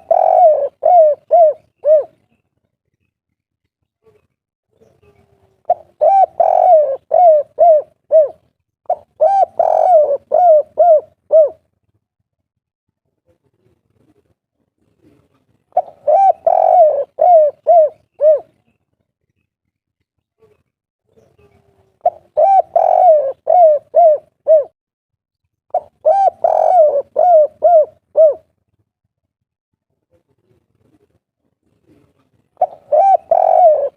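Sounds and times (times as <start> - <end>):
dove cooing: 0.0 - 2.3, 4.9 - 11.7, 15.0 - 18.6, 21.4 - 24.8, 25.7 - 28.5, 31.9 - 33.9.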